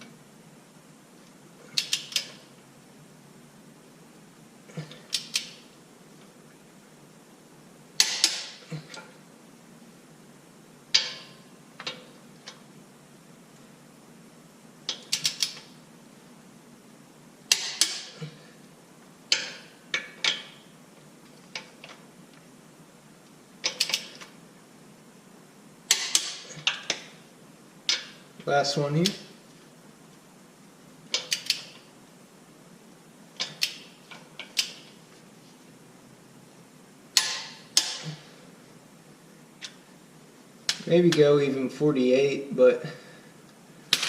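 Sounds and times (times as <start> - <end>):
hand tools clicking on bolts: 1.7 - 2.4, 8.0 - 9.0, 17.5 - 18.3, 23.6 - 24.3, 25.9 - 27.0.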